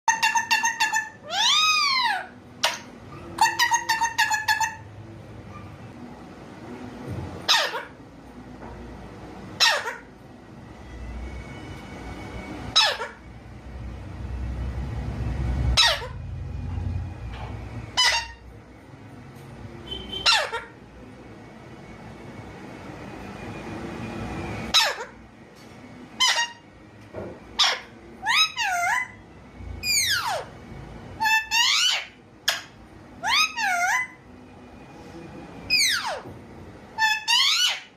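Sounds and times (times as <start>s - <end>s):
parrot chirping: 0.1s - 5.8s, 7.4s - 8.0s, 9.4s - 10.2s, 11.4s - 13.7s, 14.8s - 16.8s, 17.8s - 18.7s, 19.8s - 20.8s, 24.7s - 25.2s, 26.1s - 26.8s, 27.5s - 30.6s, 31.2s - 34.3s, 35.6s - 36.3s, 36.9s - 37.9s
parrot squawking: 0.1s - 5.8s, 7.4s - 8.0s, 9.5s - 10.2s, 12.6s - 13.4s, 15.6s - 16.3s, 17.9s - 18.6s, 19.9s - 20.8s, 24.7s - 25.2s, 26.2s - 26.7s, 27.5s - 29.2s, 29.8s - 30.6s, 31.2s - 34.3s, 35.7s - 36.3s, 37.0s - 37.9s.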